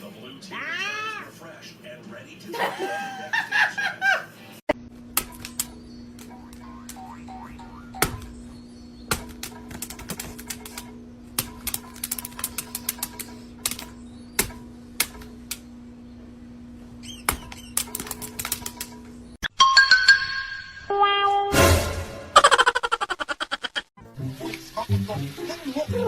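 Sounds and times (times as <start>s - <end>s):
musical sound effect: 19.5s - 22.4s.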